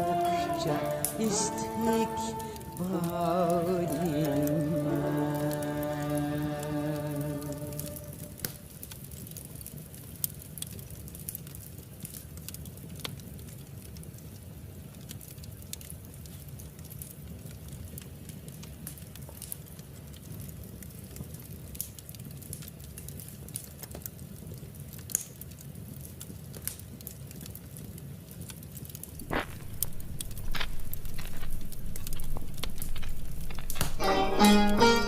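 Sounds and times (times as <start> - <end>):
plucked-string music: 0.0 - 8.4, 29.2 - 35.0
wood fire crackling: 0.0 - 35.0.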